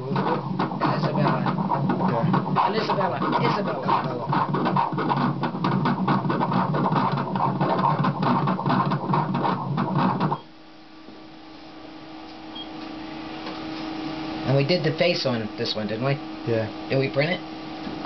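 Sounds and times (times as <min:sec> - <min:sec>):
printer buzzing: 0:00.0 - 0:10.5, 0:14.4 - 0:18.0
faint machine hum: 0:00.0 - 0:18.0.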